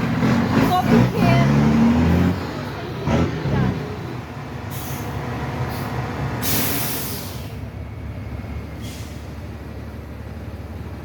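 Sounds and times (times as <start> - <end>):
truck engine running: 0.0 - 11.0
air brake hiss: 4.7 - 7.6, 8.8 - 9.4.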